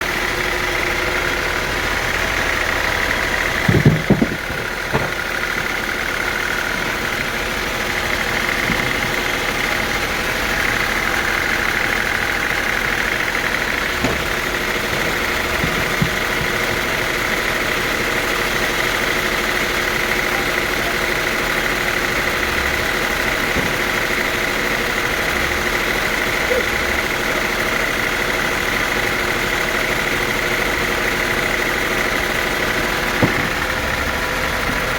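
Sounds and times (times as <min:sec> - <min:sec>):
sawmill machinery running: 0:00.0 - 0:34.9
knocks: 0:03.6 - 0:05.8, 0:13.8 - 0:17.1, 0:23.5 - 0:24.3, 0:33.1 - 0:33.8.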